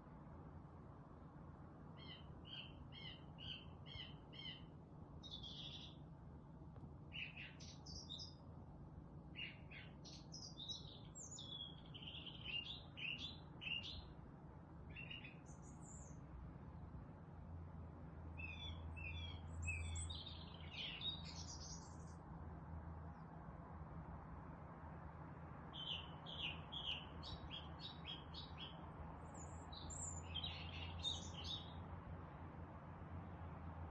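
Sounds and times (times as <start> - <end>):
songbirds singing and chirping: 1.9 - 6.2, 6.9 - 8.5, 9.2 - 14.2, 14.8 - 16.3, 18.3 - 22.2, 25.6 - 32.1.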